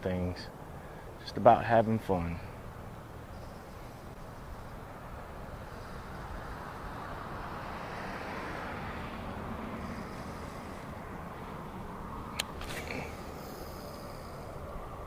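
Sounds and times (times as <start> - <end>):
passing vehicle: 0.4 - 15.0
sharp clicks: 12.3 - 12.8.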